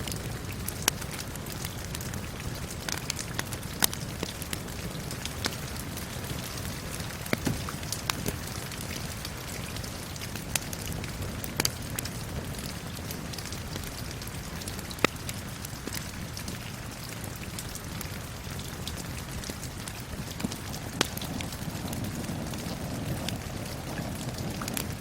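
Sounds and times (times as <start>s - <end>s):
steady rain hissing: 0.0s - 25.0s
wood fire crackling and popping: 0.0s - 25.0s.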